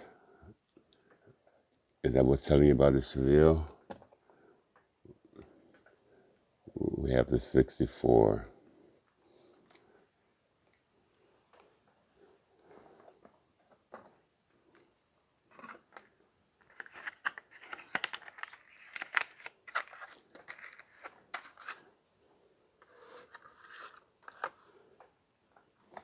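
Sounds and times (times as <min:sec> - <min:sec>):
soft plastic rustling: 0:08.7 - 0:26.0
plastic packaging crinkling: 0:15.5 - 0:22.0.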